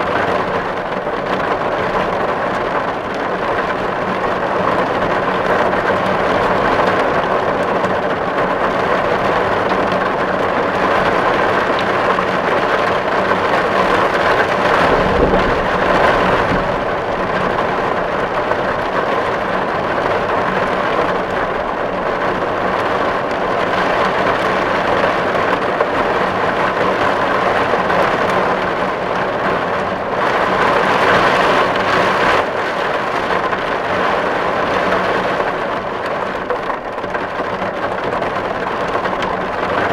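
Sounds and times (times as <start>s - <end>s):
heavy rain on a tin roof: 0.0s - 39.9s
low rumble: 13.9s - 20.0s.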